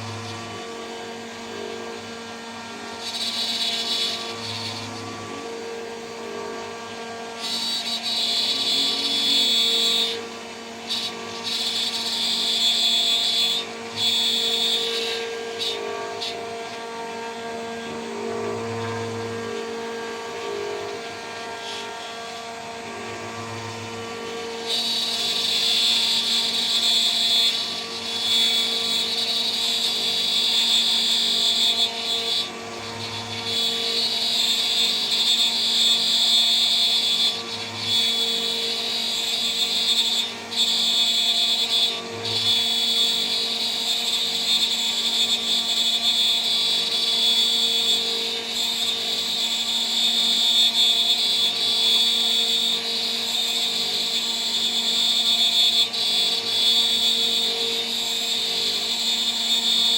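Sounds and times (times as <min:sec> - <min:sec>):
spindle whine: 0:00.0 - 0:07.5
high-pitched milling screech: 0:00.0 - 0:59.9.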